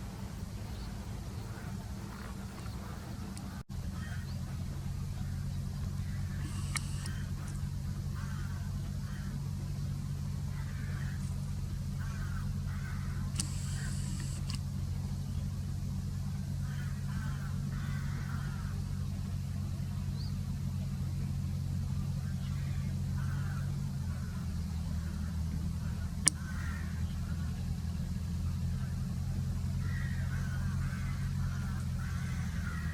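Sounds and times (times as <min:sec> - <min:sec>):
faint bird calls: 0:00.0 - 0:32.9
low hum: 0:00.0 - 0:32.9
sharp click: 0:06.4 - 0:07.6, 0:13.4 - 0:14.6.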